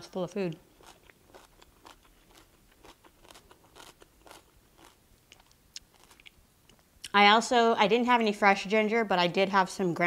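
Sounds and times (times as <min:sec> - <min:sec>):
soft crunchy chewing: 0:00.4 - 0:07.2.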